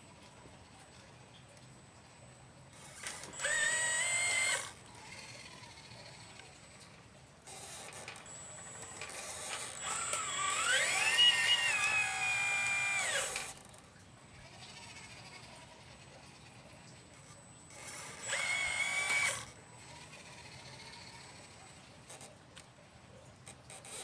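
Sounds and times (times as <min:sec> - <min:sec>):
electric motor whining: 0:02.7 - 0:13.8, 0:14.5 - 0:22.3.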